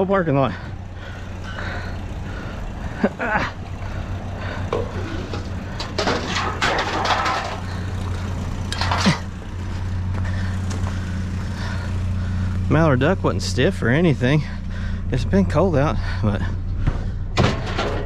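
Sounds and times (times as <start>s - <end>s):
vehicle engine idling: 0.0s - 18.0s
knocks and clatter: 4.4s - 11.0s, 16.8s - 18.0s.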